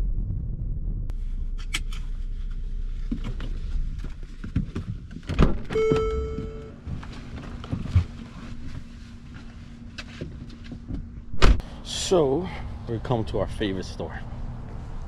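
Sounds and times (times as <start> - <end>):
electronic beep: 5.7 - 6.7
loud thunk: 11.3 - 11.6.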